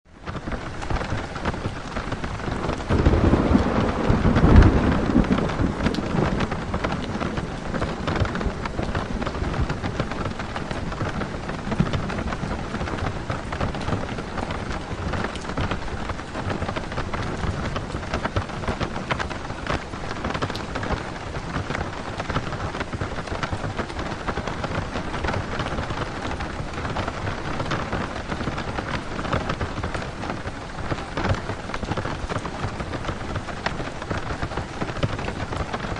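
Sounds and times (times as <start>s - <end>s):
rain pattering on a roof: 0.0s - 35.9s
thunder rumble: 0.2s - 35.9s.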